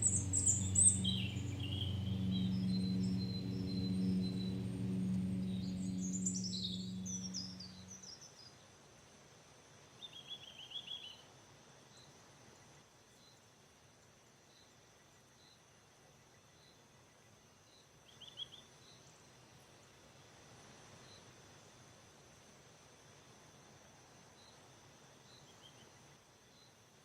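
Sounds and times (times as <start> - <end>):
birds chirping in trills: 0.0 - 8.0
lawnmower humming: 0.0 - 8.0
faint high chirp: 0.0 - 8.1.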